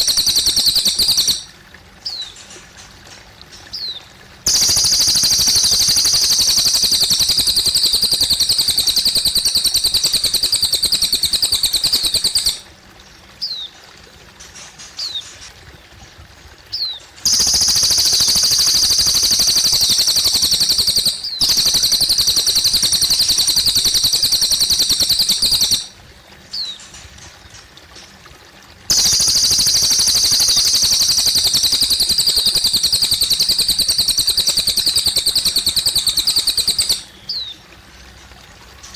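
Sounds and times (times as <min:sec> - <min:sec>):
bird chirps: 0:00.0 - 0:01.5, 0:03.7 - 0:12.6, 0:16.7 - 0:25.9, 0:28.9 - 0:37.6
bird singing high rapid trills: 0:00.0 - 0:02.4, 0:03.7 - 0:12.6, 0:16.7 - 0:27.0, 0:28.9 - 0:37.6
water trickling faintly: 0:00.0 - 0:38.9.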